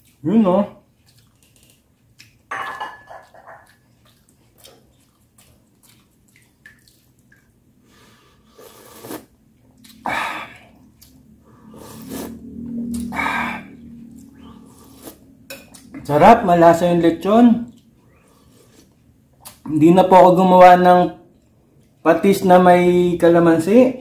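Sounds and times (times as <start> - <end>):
slurping broth from a spoon: 8.2 - 10.7, 11.4 - 15.4.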